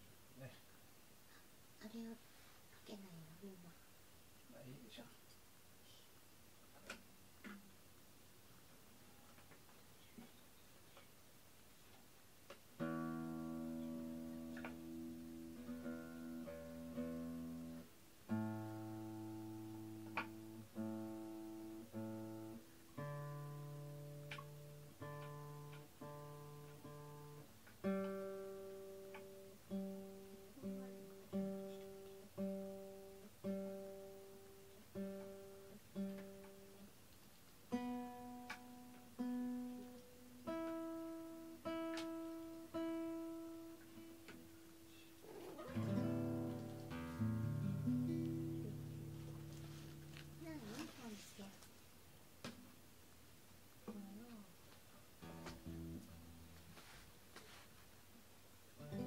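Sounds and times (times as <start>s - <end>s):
acoustic guitar chords: 12.8s - 36.9s, 37.7s - 50.6s, 55.2s - 56.6s, 58.8s - 59.0s.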